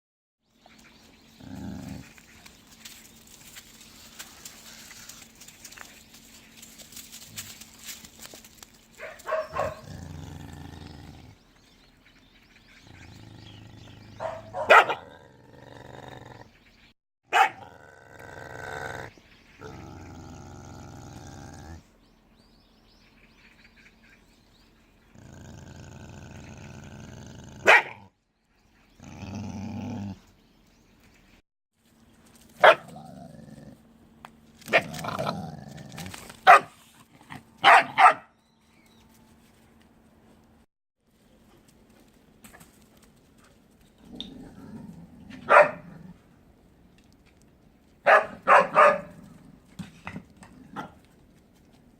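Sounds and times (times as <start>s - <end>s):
dog growling grumbles: 1.3s - 2.2s, 9.5s - 11.4s, 12.8s - 16.6s, 17.6s - 21.9s, 25.1s - 28.1s, 28.9s - 30.3s, 32.8s - 33.9s, 34.7s - 36.4s, 44.0s - 46.3s
dog barking sharply: 9.0s - 9.8s, 14.2s - 15.0s, 17.3s - 17.6s, 27.6s - 28.0s, 32.6s - 32.9s, 36.4s - 36.7s, 37.6s - 38.3s, 45.5s - 45.8s, 48.1s - 49.1s.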